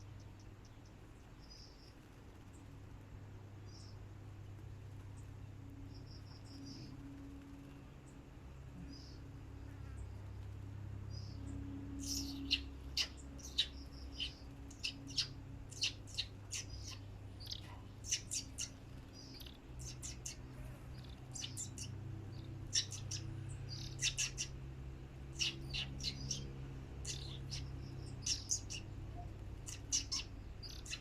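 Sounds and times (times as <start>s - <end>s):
steady low hum: 0.0s - 31.0s
bird giving sharp chirps: 12.0s - 20.4s, 21.0s - 24.5s, 25.3s - 28.9s, 29.6s - 31.0s.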